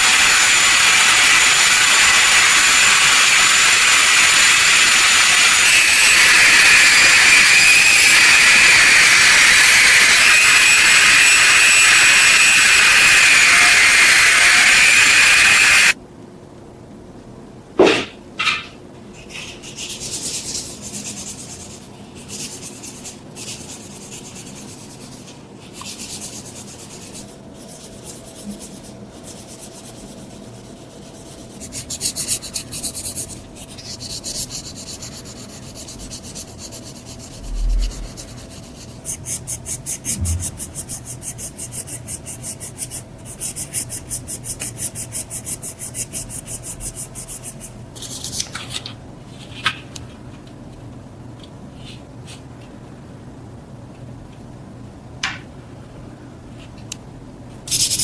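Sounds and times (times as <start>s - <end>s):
hand rubbing on a surface: 19.3s - 47.7s
dull low knocks: 40.1s - 40.9s.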